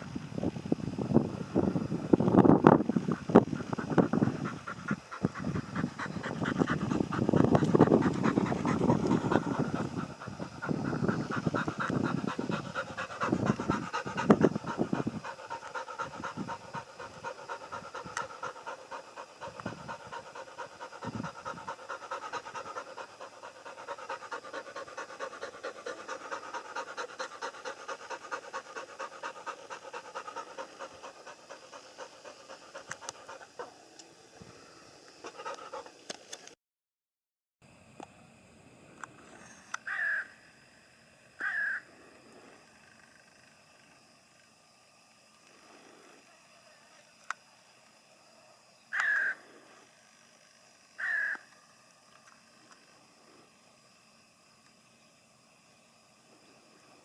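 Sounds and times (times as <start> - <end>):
pigs grunting and chewing: 3.5 - 33.6.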